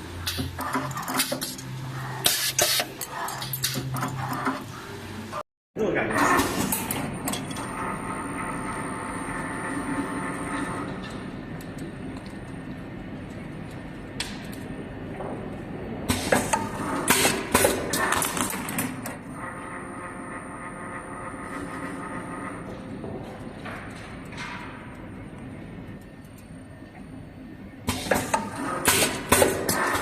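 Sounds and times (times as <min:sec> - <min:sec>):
machine motor whine: 0:06.2 - 0:11.5, 0:19.2 - 0:23.1.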